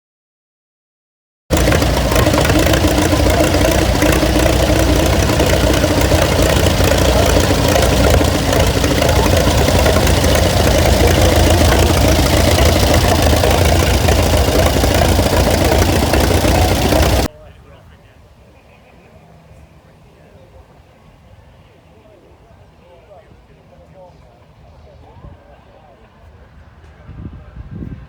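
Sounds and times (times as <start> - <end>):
engine idling: 1.5 - 17.3.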